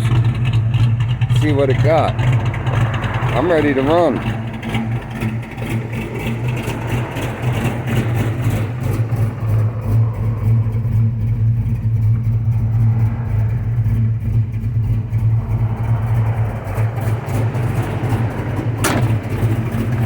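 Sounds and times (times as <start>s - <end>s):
loping car engine idling: 0.0s - 20.0s.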